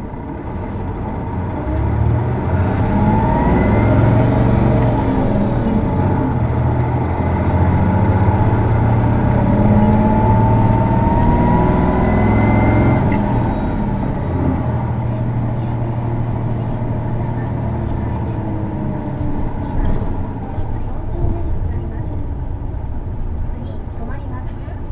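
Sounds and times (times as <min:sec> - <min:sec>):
bus diesel engine accelerating: 0:00.0 - 0:24.9
rising engine whine: 0:00.0 - 0:24.9.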